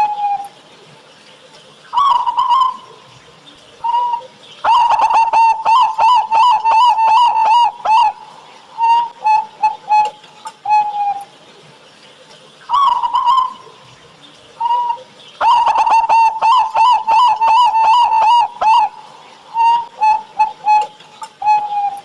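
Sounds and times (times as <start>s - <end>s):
dove cooing: 0.0s - 0.8s, 1.8s - 11.4s, 12.7s - 22.0s.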